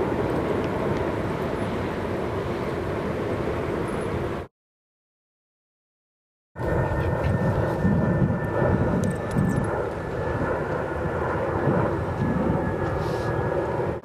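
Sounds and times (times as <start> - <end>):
engine drone: 6.6 - 14.0.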